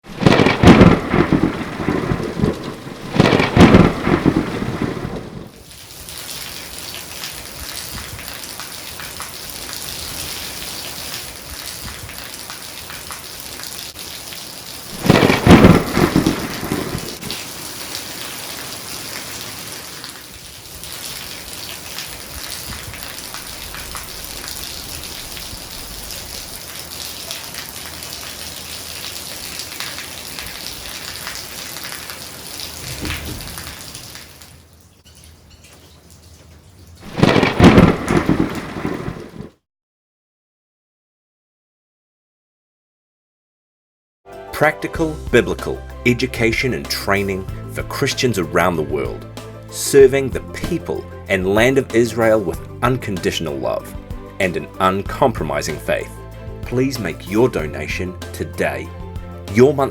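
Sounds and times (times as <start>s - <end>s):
thunder rumbling: 0.0s - 5.6s, 14.9s - 17.9s, 22.0s - 26.8s, 32.8s - 33.9s, 37.0s - 39.6s
steady rain: 0.0s - 39.6s, 44.6s - 59.9s.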